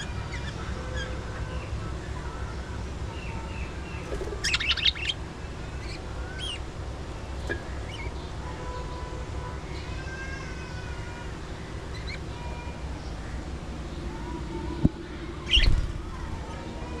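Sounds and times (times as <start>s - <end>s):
budgerigars chirping and whistling: 0.0s - 1.7s, 3.1s - 5.2s, 5.8s - 6.6s, 7.4s - 8.3s, 15.4s - 15.8s
budgerigars scratchy chatter: 3.1s - 6.7s, 15.4s - 15.9s
steady low rumble: 11.3s - 17.0s.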